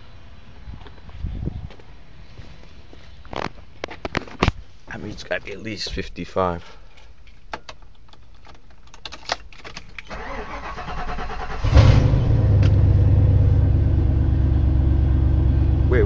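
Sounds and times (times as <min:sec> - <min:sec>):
engine idling: 0:10.2 - 0:16.0.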